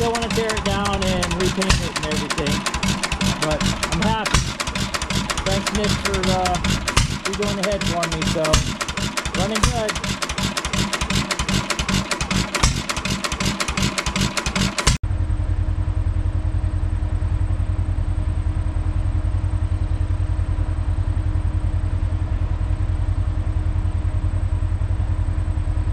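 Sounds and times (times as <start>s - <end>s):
person talking: 0.0s - 10.2s
steady low drone: 0.0s - 25.7s
stationary engine exhaust beats: 0.0s - 25.9s.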